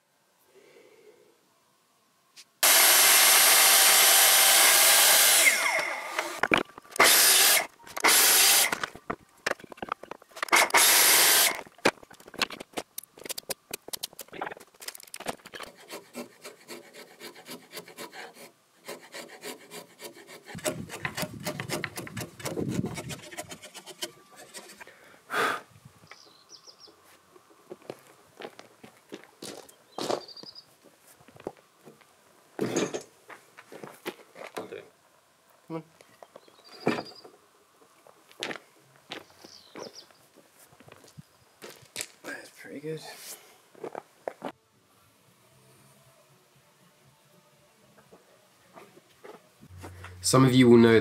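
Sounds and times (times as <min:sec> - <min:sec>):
power tool cutting wood: 0:02.6 - 0:06.4, 0:07.0 - 0:08.8, 0:10.5 - 0:11.6.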